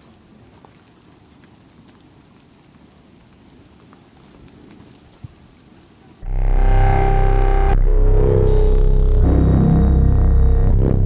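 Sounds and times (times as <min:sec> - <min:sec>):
faint low rumble: 0:06.2 - 0:11.0
loud music: 0:06.2 - 0:11.0.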